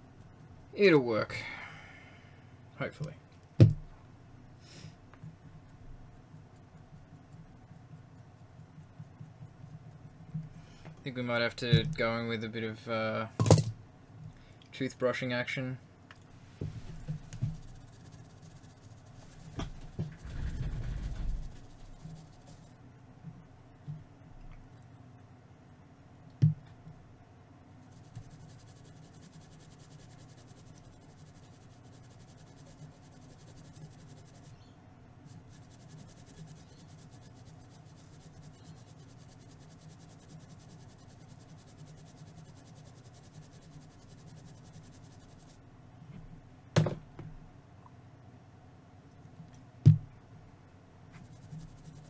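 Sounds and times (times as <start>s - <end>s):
sharp knocks: 3.6s - 3.9s
toothbrush scrubbing: 17.0s - 22.7s, 27.9s - 34.6s, 35.3s - 45.6s, 51.2s - 52.0s.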